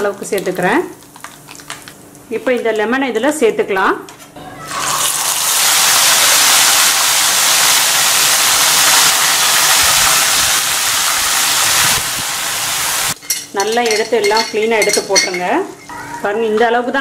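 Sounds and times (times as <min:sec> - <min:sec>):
lemon pieces sizzling in oil: 0:04.7 - 0:14.0.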